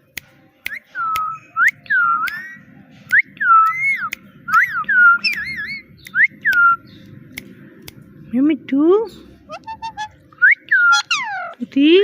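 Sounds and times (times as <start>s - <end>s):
sharp clicks: 3.1s - 8.1s
parrot whistling chirps: 3.4s - 6.8s, 9.5s - 11.6s.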